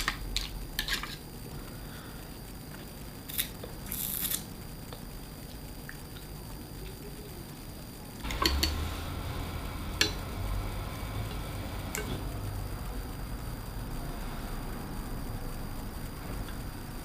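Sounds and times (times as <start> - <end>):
low rumble of handling: 8.2 - 17.0.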